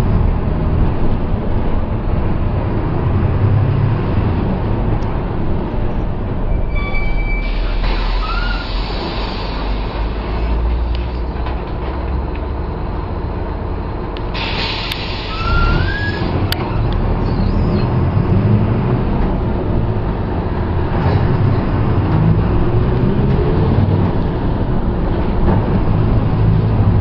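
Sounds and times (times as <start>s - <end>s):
bus diesel engine running: 0.0s - 27.0s
short squeal: 6.5s - 9.6s, 15.1s - 18.0s.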